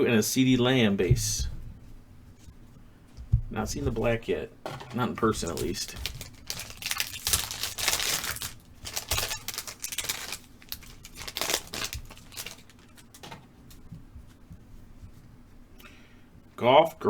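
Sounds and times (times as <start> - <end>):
cards being handled: 5.1 - 13.9
foil wrapper tearing and crinkling: 5.2 - 13.2.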